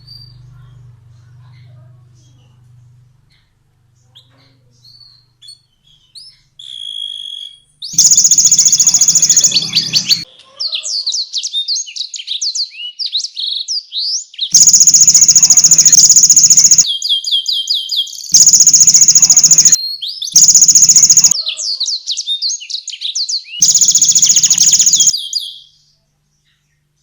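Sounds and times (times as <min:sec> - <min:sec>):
canary singing: 0:06.7 - 0:10.3, 0:14.5 - 0:21.4, 0:23.6 - 0:25.6.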